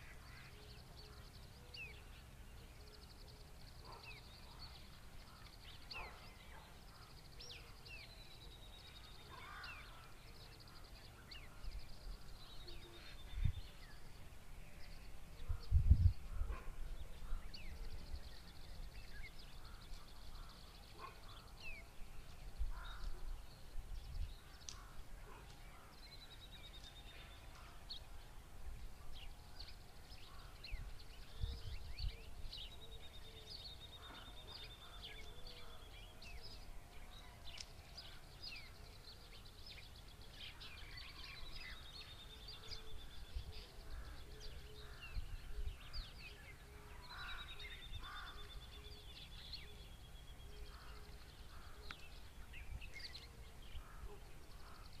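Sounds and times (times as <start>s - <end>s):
birds chirping: 0.0s - 55.0s
low repeated bird notes: 0.0s - 55.0s.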